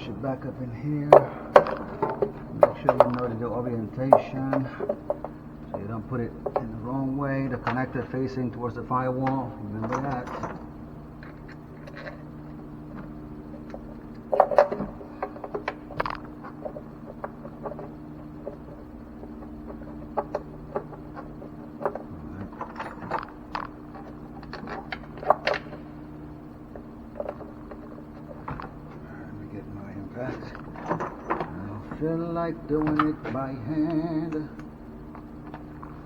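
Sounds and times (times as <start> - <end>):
low hum: 0.0 - 36.0
sharp knocks: 1.0 - 7.0
metal parts clicking and scraping: 13.5 - 26.0, 30.1 - 36.0.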